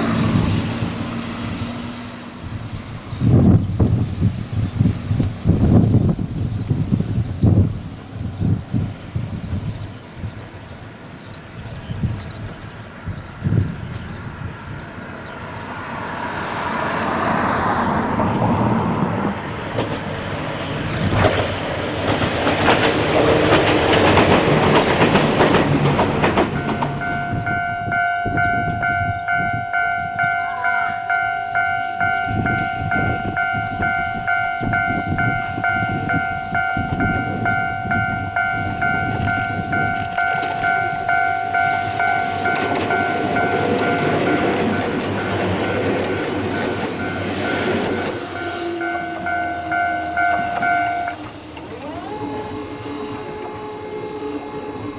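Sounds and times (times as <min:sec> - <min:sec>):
electric train passing: 0:00.0 - 0:54.9
level crossing warning bell: 0:20.8 - 0:54.9.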